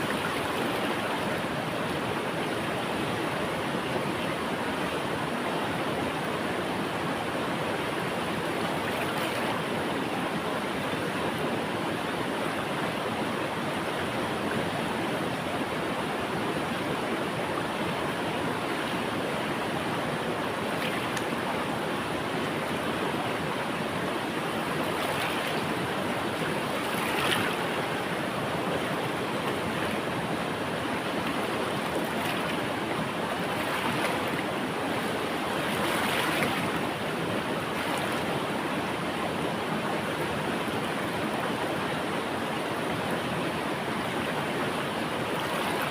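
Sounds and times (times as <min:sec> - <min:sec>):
water splashes: 0:00.0 - 0:03.4, 0:08.4 - 0:11.5, 0:17.4 - 0:42.2, 0:42.8 - 0:45.9
river water rushing over rocks: 0:00.0 - 0:45.9.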